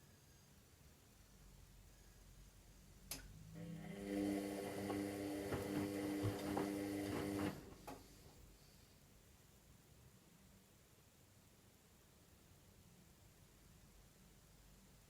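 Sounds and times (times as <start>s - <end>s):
washing machine motor humming: 3.6s - 8.0s
knocks inside washing machine: 4.8s - 7.6s.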